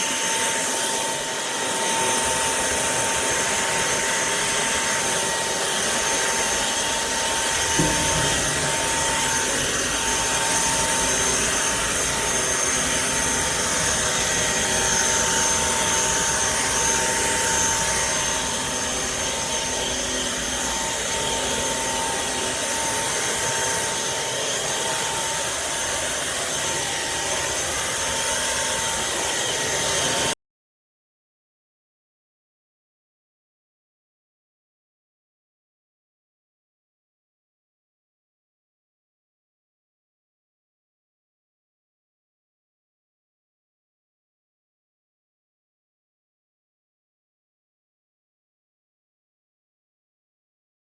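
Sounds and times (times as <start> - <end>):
vacuum cleaner whining: 0.0 - 30.4.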